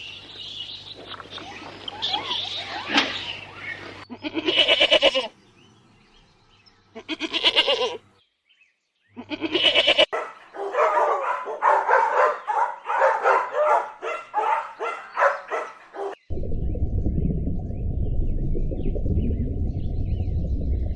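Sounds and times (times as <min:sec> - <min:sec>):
goat bleating: 0:04.1 - 0:05.3, 0:07.0 - 0:08.0, 0:09.2 - 0:10.1.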